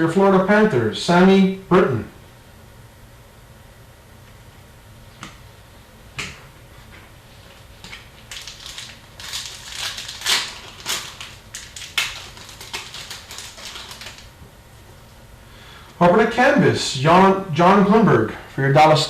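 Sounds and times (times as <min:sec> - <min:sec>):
card pack wrapper crinkling: 0:07.9 - 0:14.4.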